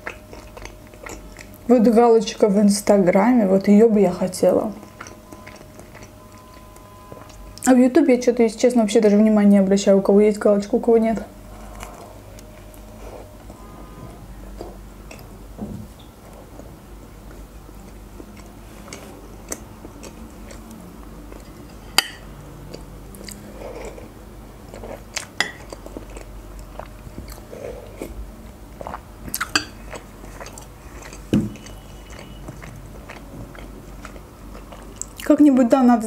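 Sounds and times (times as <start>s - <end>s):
person chewing with wet mouth sounds: 0.0s - 1.7s, 4.8s - 7.7s, 11.4s - 15.3s, 15.9s - 35.4s
steady low hum: 0.0s - 36.0s.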